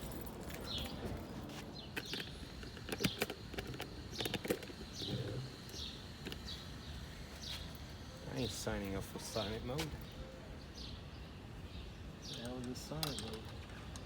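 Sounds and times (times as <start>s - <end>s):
small bird chirping: 0.6s - 14.0s
metallic clicks of hand tools: 12.3s - 14.0s.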